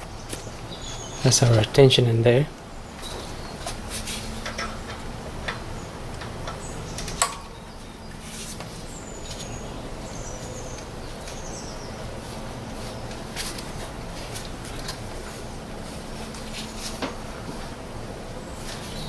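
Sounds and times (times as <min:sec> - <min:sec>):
birds chirping: 0:00.0 - 0:14.1
steady low hum: 0:00.0 - 0:19.0.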